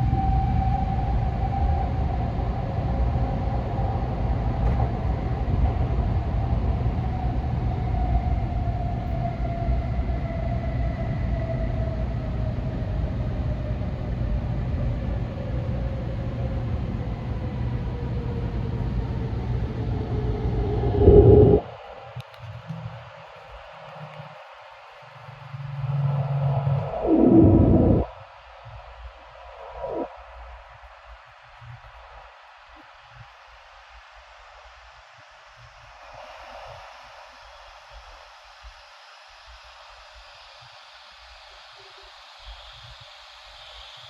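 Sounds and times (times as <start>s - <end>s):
train rumbling through tunnel: 0.1s - 21.8s
faint falling tone: 20.3s - 21.7s, 25.5s - 28.2s.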